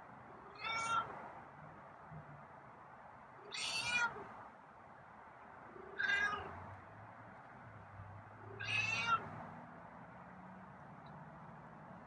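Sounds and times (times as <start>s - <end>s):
cat meowing: 0.5s - 1.1s, 3.5s - 4.2s, 6.0s - 6.5s, 8.6s - 9.2s.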